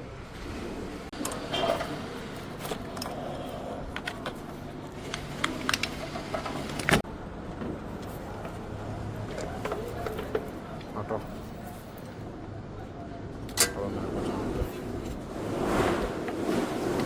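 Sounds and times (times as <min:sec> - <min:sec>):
hand tools clinking on metal: 0:13.4 - 0:14.0.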